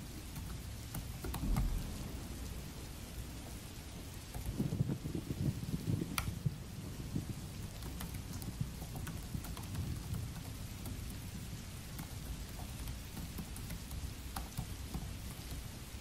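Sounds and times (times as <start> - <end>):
steady rain: 0.0 - 16.0
typing on laptop keyboard: 0.3 - 1.4, 7.6 - 15.8
low rumble: 1.4 - 5.7.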